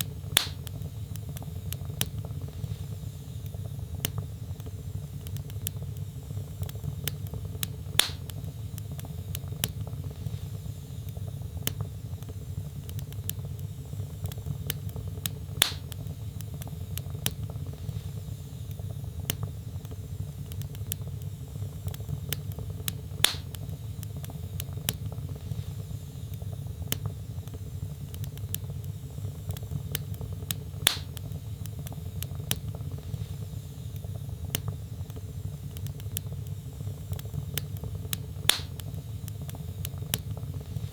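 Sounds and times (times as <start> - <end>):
loud pops of burning wood: 0.0 - 40.9
wood logs burning in fireplace: 0.0 - 40.9.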